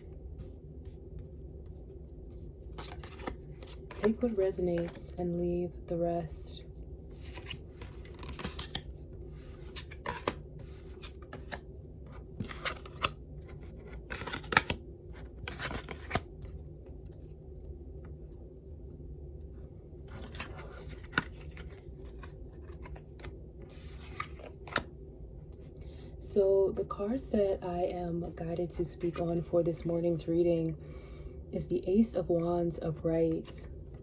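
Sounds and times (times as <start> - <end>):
steady low hum: 0.0 - 34.0
cards shuffling and sliding: 2.7 - 5.1, 7.2 - 11.6, 12.4 - 16.5, 20.1 - 24.9.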